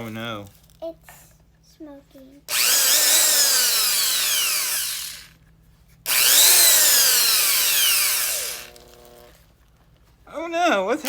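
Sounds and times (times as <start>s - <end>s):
power drill motor whining: 2.5s - 5.4s, 6.1s - 9.4s.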